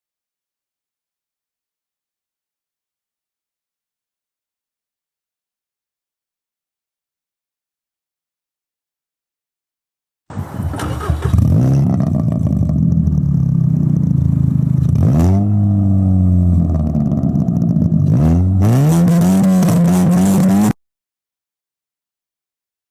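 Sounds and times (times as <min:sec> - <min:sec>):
car engine accelerating: 0:10.3 - 0:20.8.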